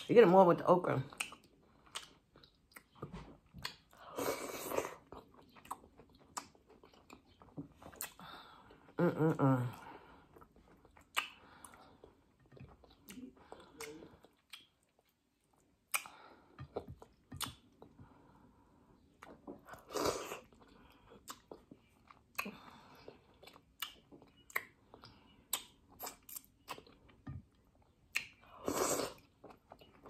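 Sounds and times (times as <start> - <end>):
close-up chewing: 1.0 - 9.0, 9.8 - 30.0
wet mouth clicks and smacks: 1.1 - 4.0, 10.9 - 11.8, 12.8 - 16.2, 16.8 - 17.8, 23.4 - 26.9, 28.1 - 28.5.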